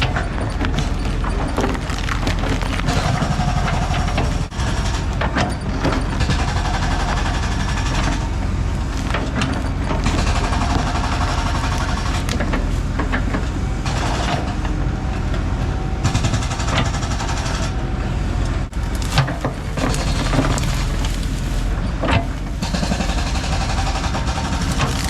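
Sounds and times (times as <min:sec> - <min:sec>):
heavy diesel equipment running: 0:00.0 - 0:25.0
knocks and clanks: 0:18.6 - 0:25.0.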